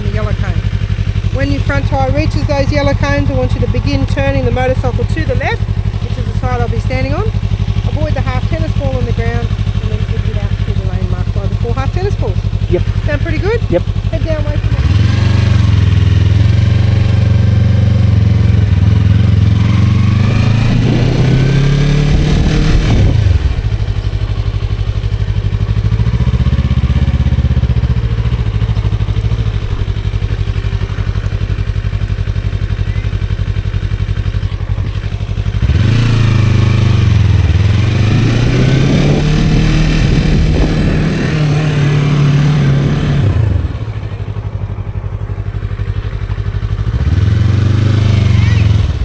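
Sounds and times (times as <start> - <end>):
motorcycle engine accelerating: 0.0 - 49.0.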